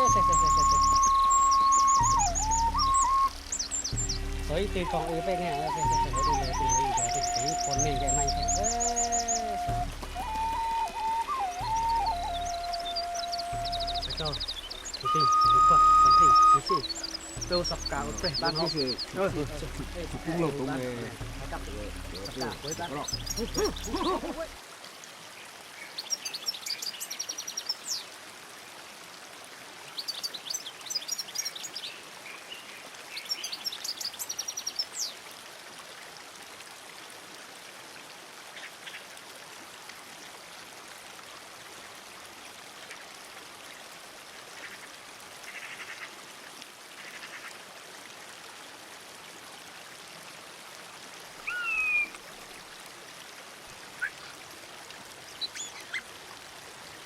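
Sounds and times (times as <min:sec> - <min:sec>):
slurred bird whistle: 0:00.0 - 0:19.1, 0:51.4 - 0:52.1
songbird chirping: 0:00.0 - 0:24.6, 0:25.4 - 0:28.2, 0:29.9 - 0:35.2, 0:51.4 - 0:52.6, 0:54.0 - 0:56.1
background hiss: 0:00.0 - 0:24.7.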